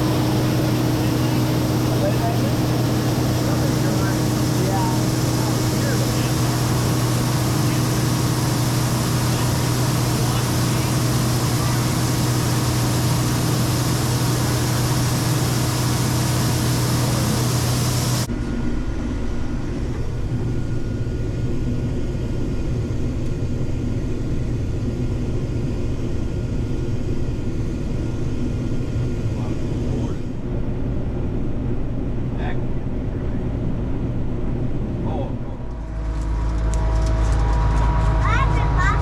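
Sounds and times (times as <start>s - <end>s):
loud rushing hiss: 0.0s - 18.3s
farm machinery engine drone: 0.0s - 39.0s.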